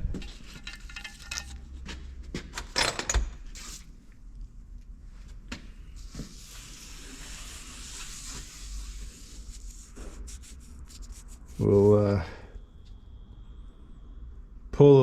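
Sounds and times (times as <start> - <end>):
rubbing scraping hiss: 6.0 - 12.4.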